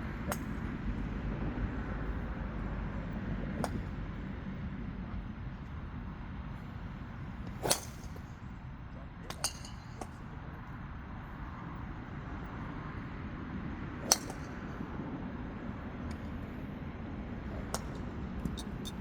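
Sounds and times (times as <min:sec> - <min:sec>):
low background rumble: 0:00.0 - 0:19.0
distant golf strikes: 0:00.2 - 0:01.0, 0:03.5 - 0:04.3, 0:07.1 - 0:08.6, 0:09.3 - 0:10.4, 0:14.0 - 0:14.9, 0:17.4 - 0:19.0
golf club striking ball: 0:07.4 - 0:08.3, 0:09.3 - 0:10.2, 0:14.0 - 0:14.6.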